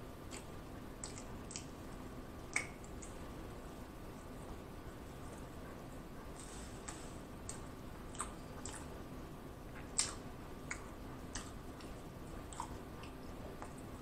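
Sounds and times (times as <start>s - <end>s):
person chewing with mouth closed: 0.3s - 3.2s, 6.4s - 9.0s, 9.7s - 14.0s.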